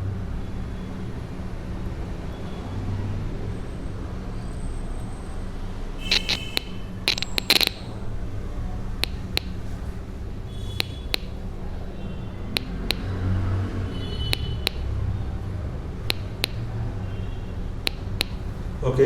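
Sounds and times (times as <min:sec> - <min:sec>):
sharp clicks from small speaker: 0:06.0 - 0:08.0, 0:09.0 - 0:09.9, 0:10.5 - 0:13.2, 0:14.2 - 0:14.9, 0:16.0 - 0:17.2, 0:17.8 - 0:18.6.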